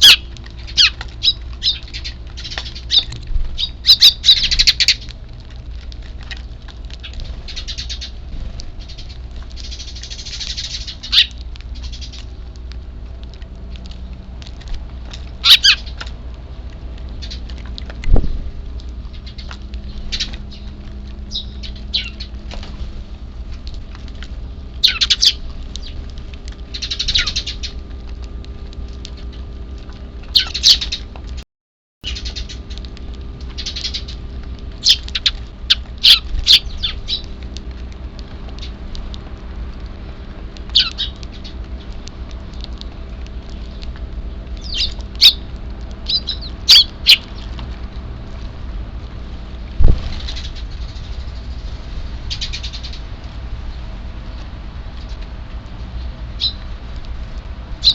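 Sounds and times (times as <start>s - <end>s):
sparrows chirping: 0.0s - 12.4s, 15.4s - 16.1s, 17.2s - 17.6s, 19.0s - 22.5s, 24.7s - 27.8s, 30.2s - 31.1s, 32.0s - 32.8s, 33.4s - 37.4s, 40.7s - 47.6s, 49.8s - 56.7s
faint steady hum: 0.0s - 31.4s, 32.0s - 57.9s.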